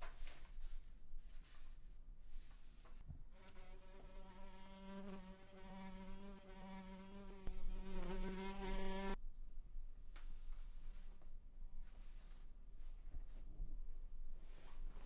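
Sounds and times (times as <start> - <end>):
fly buzzing: 3.4 - 9.2.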